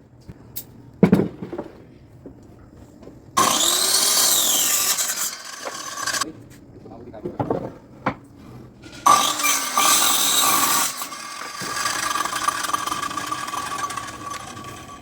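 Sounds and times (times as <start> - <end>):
power tool whining: 3.4 - 6.2, 9.0 - 15.0.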